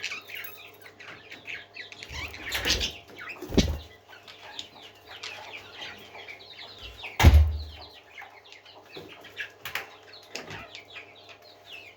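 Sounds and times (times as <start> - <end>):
parrots chirping and chattering: 0.0 - 11.9
loud thump: 7.2 - 7.7.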